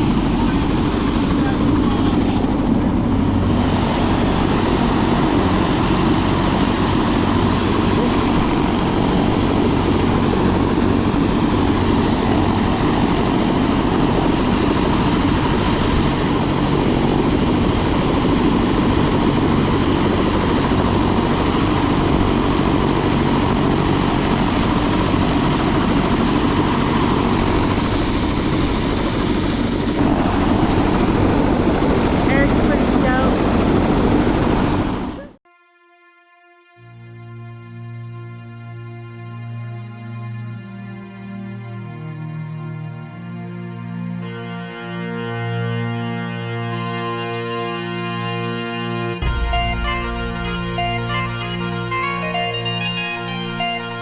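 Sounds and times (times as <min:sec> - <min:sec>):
helicopter rotor and engine: 0:00.0 - 0:35.4, 0:36.9 - 0:42.4, 0:44.3 - 0:54.0.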